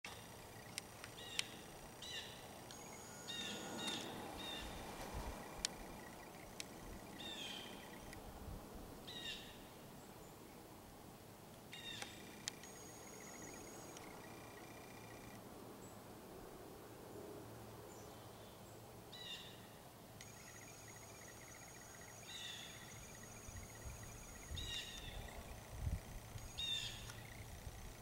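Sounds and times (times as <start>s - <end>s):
harsh bird calls: 0.1s - 8.2s, 20.3s - 28.0s
small clicks: 11.9s - 15.4s.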